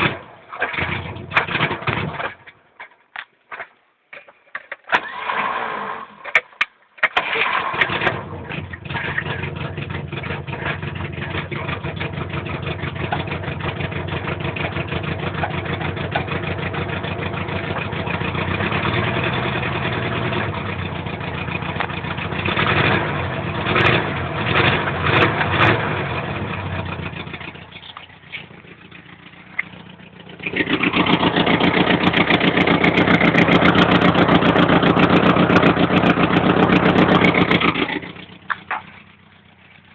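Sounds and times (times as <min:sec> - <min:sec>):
vehicle engine starting and revving: 0:00.0 - 0:02.5, 0:04.9 - 0:06.3, 0:07.1 - 0:39.9.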